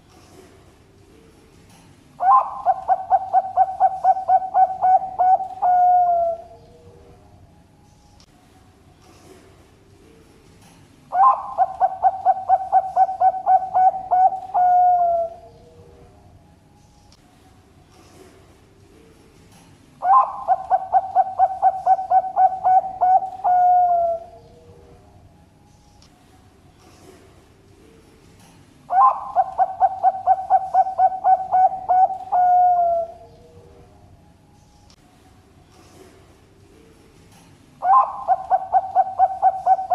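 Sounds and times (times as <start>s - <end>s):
dove cooing: 2.2s - 7.2s, 11.1s - 16.1s, 20.0s - 25.0s, 28.9s - 33.9s, 37.8s - 39.9s.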